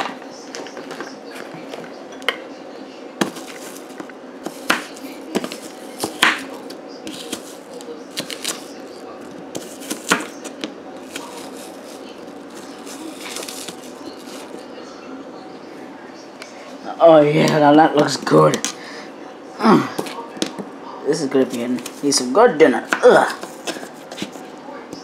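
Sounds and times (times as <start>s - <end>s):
knife chopping on cutting board: 4.4s - 6.5s, 9.6s - 10.4s.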